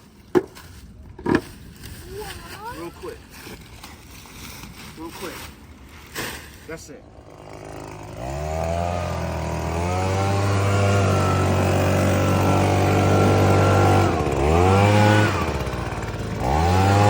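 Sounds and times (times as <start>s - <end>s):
string trimmer engine revving: 7.0s - 17.0s.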